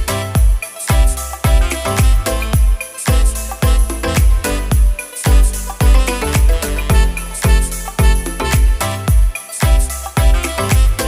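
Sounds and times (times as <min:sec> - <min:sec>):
dance music with heavy bass: 0:00.0 - 0:11.0.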